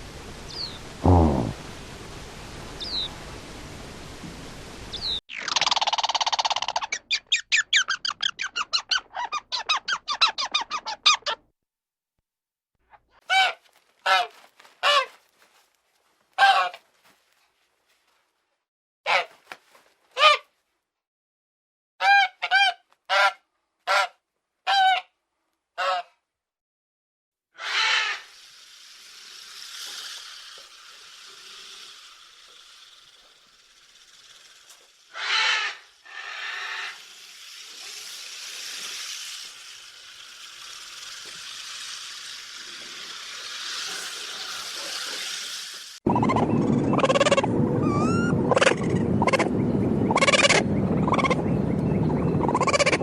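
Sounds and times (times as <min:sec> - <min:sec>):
background hiss: 0:00.0 - 0:05.2
animal calling loudly: 0:35.1 - 0:37.0, 0:46.1 - 0:49.5, 0:50.1 - 0:51.4, 0:52.4 - 0:53.0.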